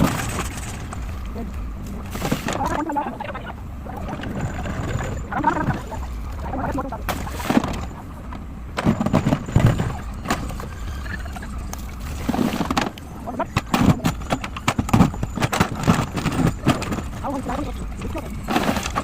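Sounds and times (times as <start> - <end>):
diesel engine under load: 0.0 - 19.0
hard material clattering: 8.7 - 10.6, 12.2 - 19.0.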